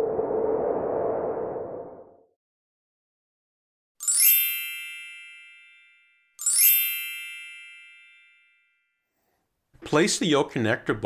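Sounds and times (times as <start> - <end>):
bright chime ding: 4.0 - 8.8.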